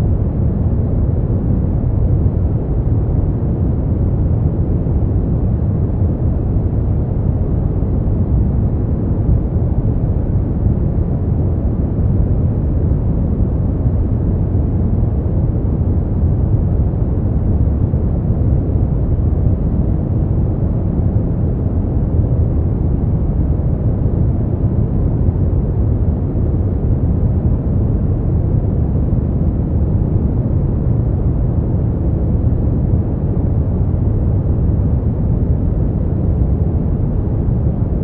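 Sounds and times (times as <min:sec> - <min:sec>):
deep muffled white noise: 0:00.0 - 0:38.0.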